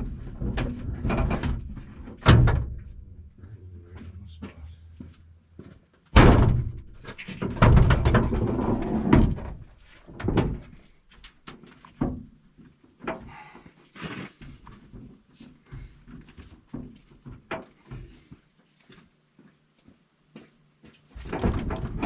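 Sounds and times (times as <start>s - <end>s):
thumping and rattling: 0.0s - 3.0s, 6.2s - 10.8s, 21.2s - 22.0s
low steady hum: 0.0s - 9.9s
truck door slamming: 6.2s - 7.0s.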